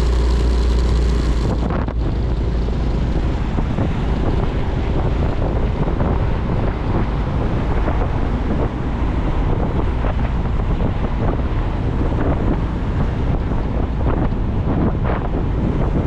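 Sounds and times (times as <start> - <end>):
motorcycle engine: 0.0 - 6.9
road noise: 0.0 - 16.0
wind rushing over microphone: 0.0 - 16.0.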